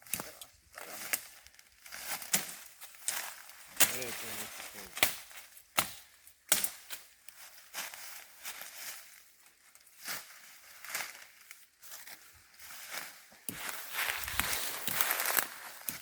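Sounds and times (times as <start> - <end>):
footsteps crunching through dry leaves: 0.7 - 6.2, 6.8 - 16.0
twig snapping: 5.0 - 6.8, 13.5 - 16.0.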